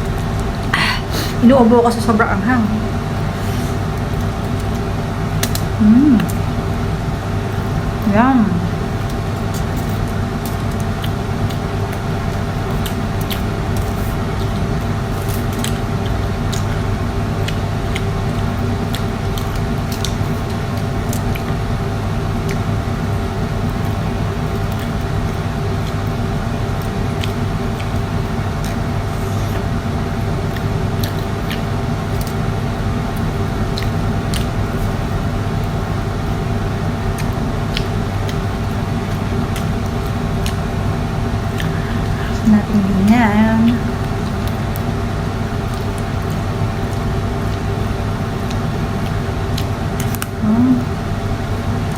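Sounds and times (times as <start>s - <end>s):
steady machine hum: 0.0s - 51.9s
clicks and smacks of eating prawns: 3.9s - 6.4s, 9.0s - 22.8s, 23.6s - 42.2s, 45.6s - 50.4s.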